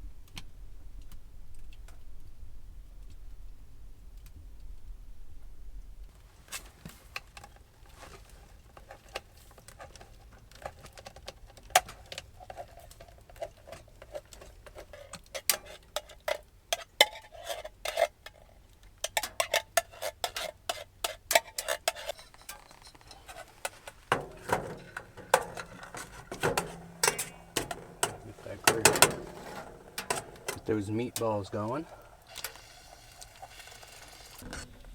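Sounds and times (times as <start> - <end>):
metal utensil clinking in a pot: 19.0 - 32.6.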